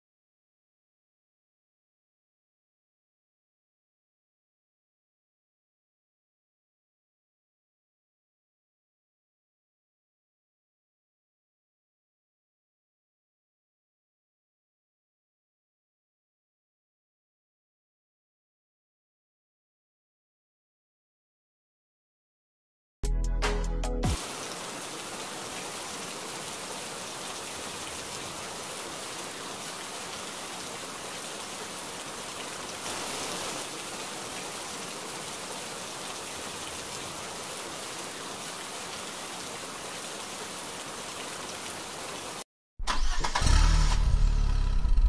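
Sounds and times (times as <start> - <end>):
water spraying on plastic: 24.2 - 42.4.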